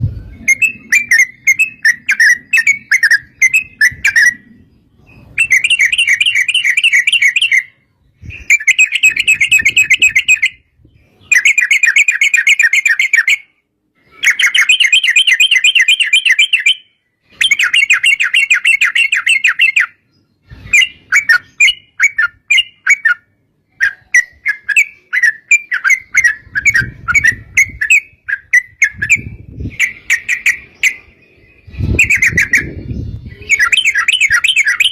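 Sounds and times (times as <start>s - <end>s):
bird singing bubbling trills: 0.0s - 13.5s, 14.2s - 34.9s.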